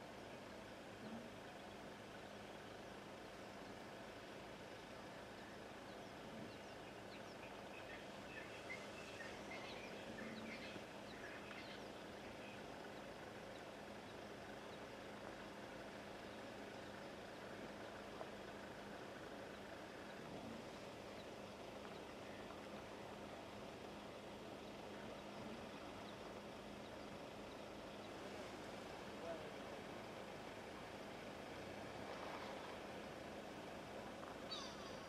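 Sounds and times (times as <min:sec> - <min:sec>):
faint hum: 0:00.0 - 0:35.0
steady low hiss: 0:00.0 - 0:35.0
faint bird chirps: 0:04.8 - 0:15.0, 0:34.4 - 0:35.0.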